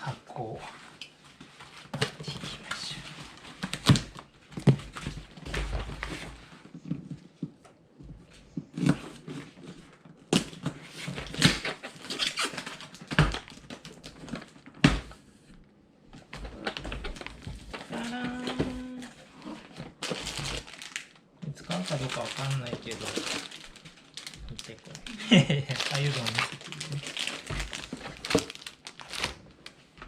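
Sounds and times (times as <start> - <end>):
cardboard rustling and scraping: 0.7 - 15.5, 16.3 - 21.0, 25.8 - 30.0.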